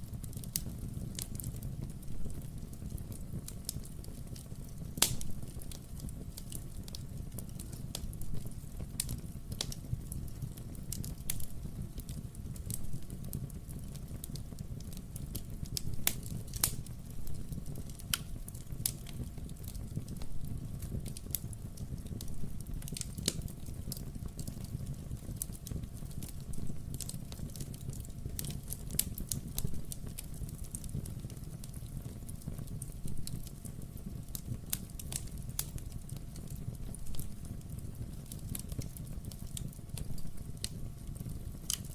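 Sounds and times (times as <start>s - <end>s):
low rumble of flames: 0.0s - 41.9s
wood fire crackling and popping: 0.0s - 41.9s.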